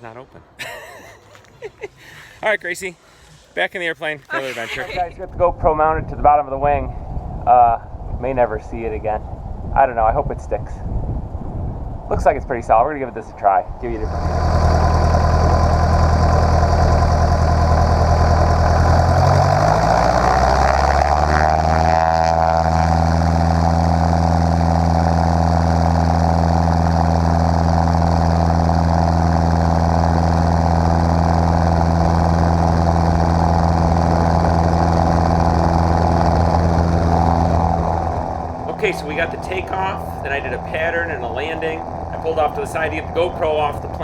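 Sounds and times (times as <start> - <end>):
propeller plane engine running up: 13.0 - 44.0.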